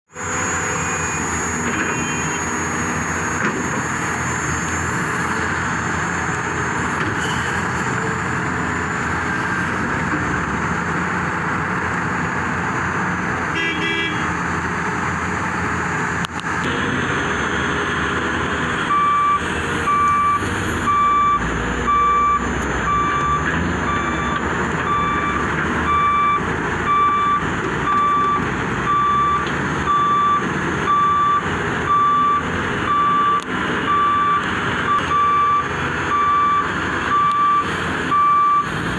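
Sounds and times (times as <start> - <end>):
heavy diesel machinery running: 0.1 - 38.9
reversing alarm beeping: 0.2 - 3.2, 18.9 - 38.7.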